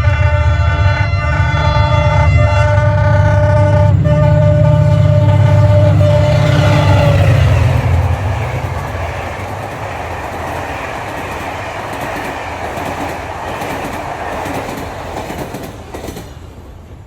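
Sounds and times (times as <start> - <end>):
train cars rumbling past: 0.0 - 17.0
wheels clicking over rail joints: 6.1 - 16.9.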